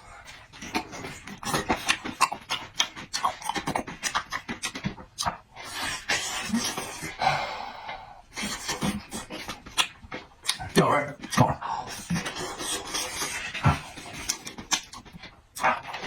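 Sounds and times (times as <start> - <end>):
person chewing: 0.1 - 16.0
breathing: 7.2 - 8.3.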